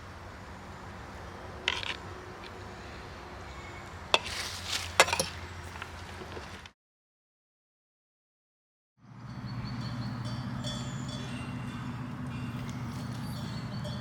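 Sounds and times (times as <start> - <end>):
pots and utensils clattering: 4.2 - 5.3.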